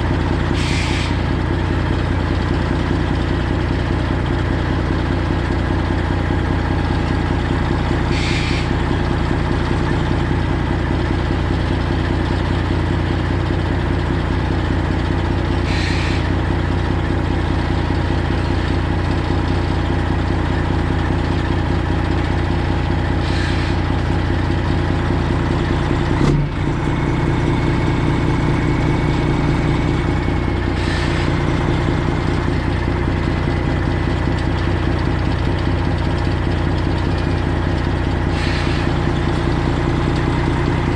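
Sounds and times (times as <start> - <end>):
truck diesel engine idling: 0.0 - 40.9
short air hiss: 0.6 - 1.2, 8.1 - 8.7, 15.7 - 16.3, 23.2 - 23.8, 38.3 - 38.9.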